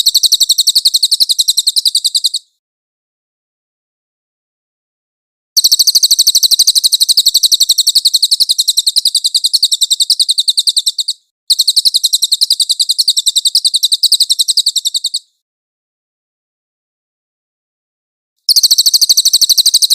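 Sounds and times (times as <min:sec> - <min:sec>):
high-pitched bird song: 0:00.0 - 0:02.5, 0:05.6 - 0:15.4, 0:18.5 - 0:19.9.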